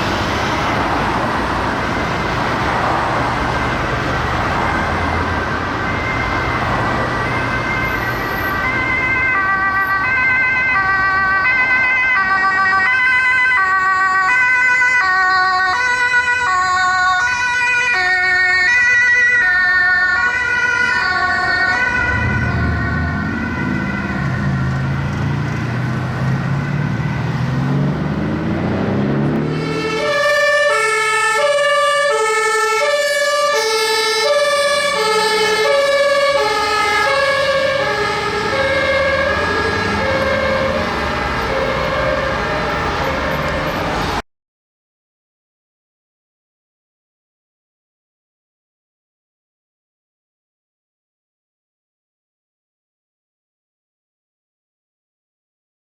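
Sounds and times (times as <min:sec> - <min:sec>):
two-tone sirens: 0:00.0 - 0:44.2
road traffic: 0:00.0 - 0:44.3
heavy vehicle engine revving: 0:21.7 - 0:30.6, 0:36.3 - 0:44.2.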